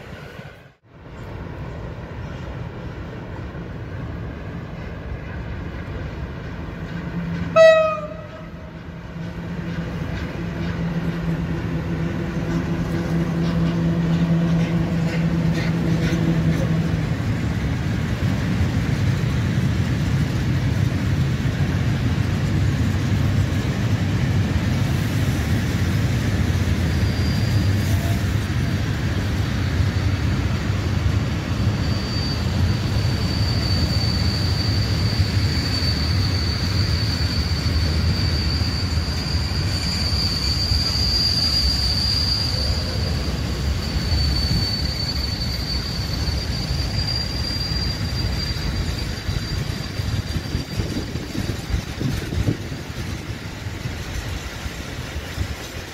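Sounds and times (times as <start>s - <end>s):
train wheels rumbling on rails: 0.0s - 55.9s
high brake squeal: 26.3s - 53.2s.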